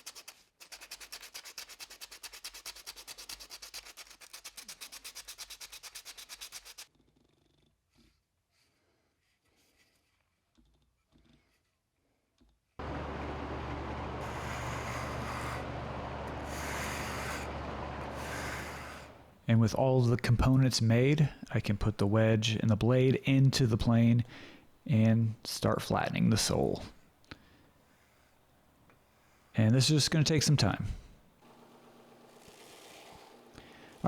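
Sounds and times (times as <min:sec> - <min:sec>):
sanding wood by hand: 0:00.0 - 0:06.9, 0:13.8 - 0:19.4, 0:31.4 - 0:34.0
power tool motor humming: 0:12.8 - 0:19.4, 0:31.4 - 0:34.0.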